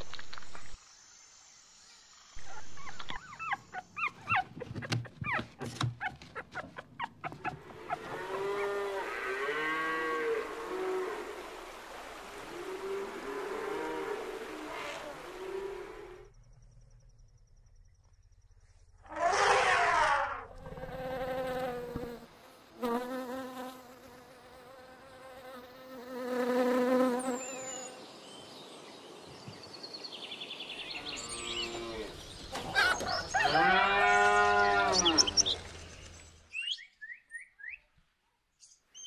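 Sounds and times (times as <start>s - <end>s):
bumblebee buzzing: 20.6s - 27.9s.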